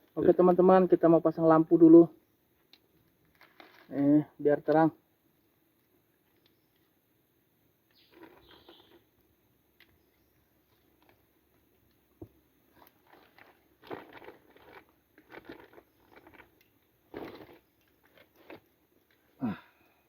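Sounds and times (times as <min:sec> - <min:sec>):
crunching and rustling handling noises: 0:02.8 - 0:04.1, 0:07.9 - 0:09.1, 0:10.6 - 0:19.4.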